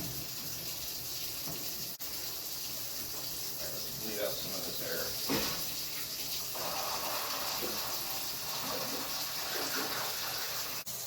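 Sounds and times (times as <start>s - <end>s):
water and air hissing from valve: 3.0s - 11.0s.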